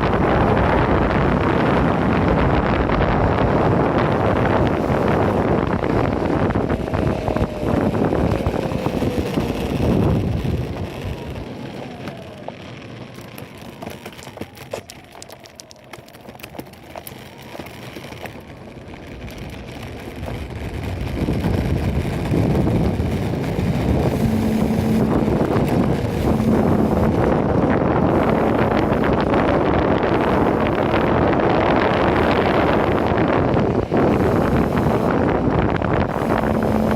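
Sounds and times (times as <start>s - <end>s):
wind rushing over microphone: 0.0s - 36.9s
scattered clicks: 13.1s - 18.5s.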